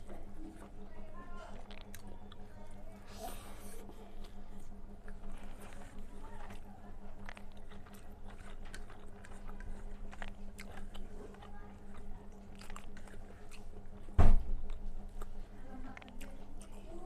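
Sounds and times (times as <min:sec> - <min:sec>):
person chewing food: 0:01.4 - 0:17.0
loud thump: 0:14.2 - 0:14.5.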